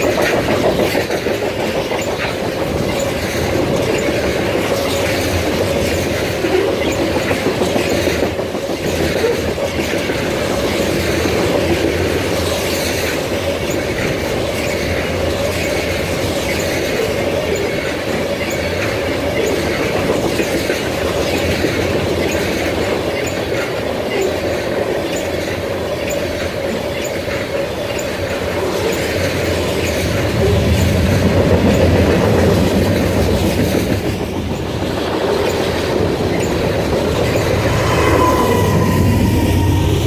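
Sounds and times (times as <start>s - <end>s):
clickety-clack over rail joints: 0.0s - 40.0s
freight train wheels on rails: 0.0s - 40.0s
steady wheel squeal: 36.3s - 40.0s.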